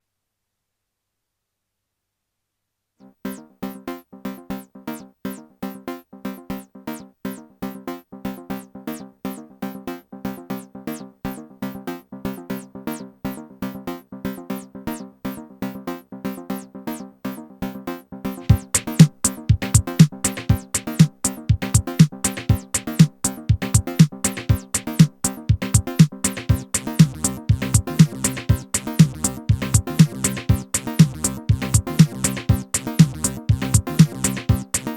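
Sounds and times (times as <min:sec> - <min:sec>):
heavy kick drum: 0:18.5 - 0:34.8
fast synth sequence: 0:18.5 - 0:34.9.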